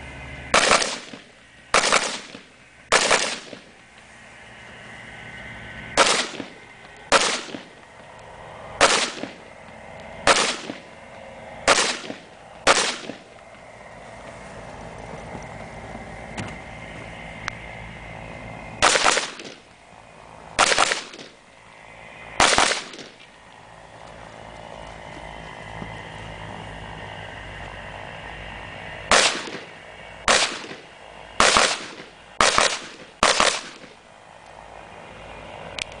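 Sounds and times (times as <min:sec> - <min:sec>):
rifle shots: 0:00.5 - 0:03.7, 0:06.0 - 0:07.8, 0:08.8 - 0:09.4, 0:10.2 - 0:10.9, 0:11.6 - 0:13.3, 0:18.8 - 0:19.6, 0:20.6 - 0:21.4, 0:22.4 - 0:23.2, 0:29.1 - 0:29.7, 0:30.3 - 0:34.0.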